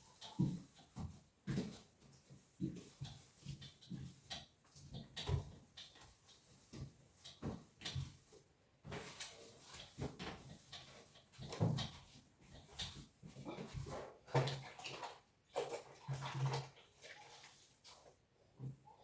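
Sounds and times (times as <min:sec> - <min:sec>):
household things knocking and clattering: 0:08.9 - 0:14.7.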